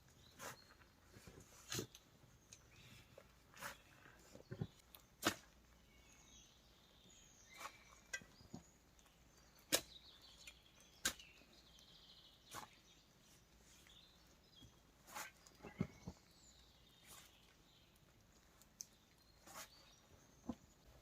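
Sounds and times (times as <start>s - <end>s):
faint high bird chirps: 5.8s - 18.0s.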